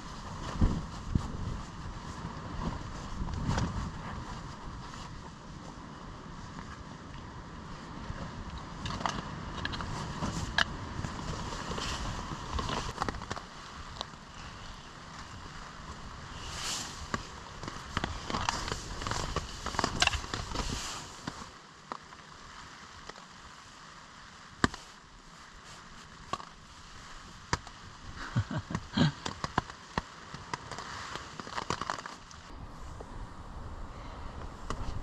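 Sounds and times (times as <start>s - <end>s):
rustling: 8.0s - 33.1s.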